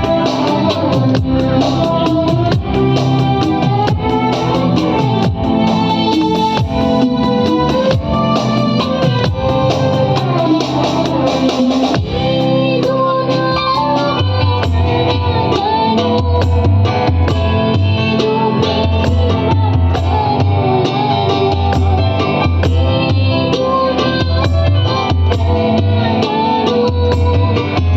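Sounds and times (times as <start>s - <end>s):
pulsing bass beat: 0.0s - 12.6s
plucked string melody: 0.0s - 27.9s.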